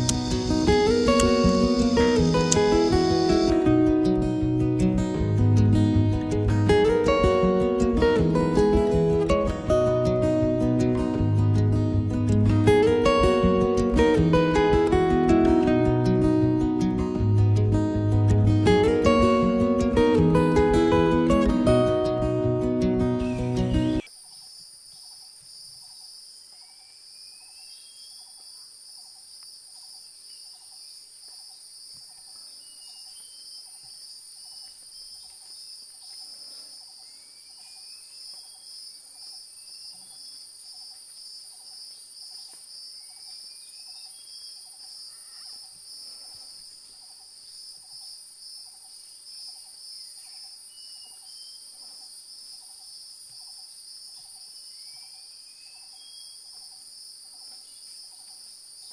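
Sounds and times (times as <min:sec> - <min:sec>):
insects trilling: 0:00.0 - 0:04.2, 0:22.6 - 0:58.9.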